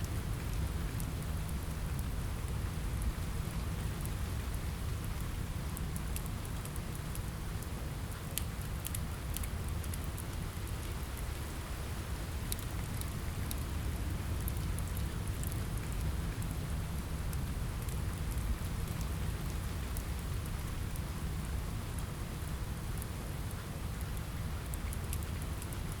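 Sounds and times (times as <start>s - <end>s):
rain on a window: 0.0s - 26.0s
wood fire crackling: 12.2s - 26.0s.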